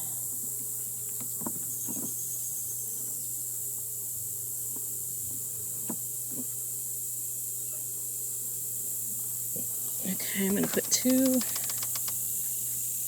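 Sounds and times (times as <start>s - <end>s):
low honeybee hum: 0.0s - 13.0s
high-pitched insect drone: 10.0s - 13.0s
soft knocks of hive parts: 10.2s - 12.2s.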